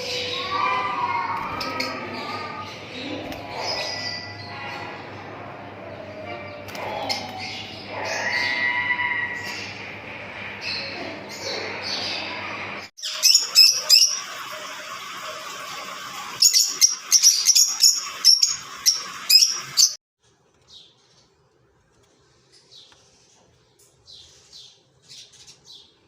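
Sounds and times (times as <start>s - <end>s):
birds chirping shrilly: 0.0s - 5.4s, 6.4s - 20.0s.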